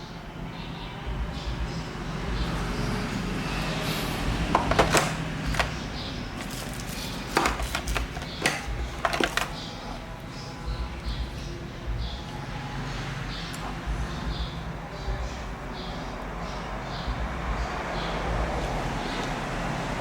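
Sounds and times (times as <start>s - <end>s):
steady low hum: 0.0s - 20.0s
handling clicks and knocks: 4.4s - 9.8s.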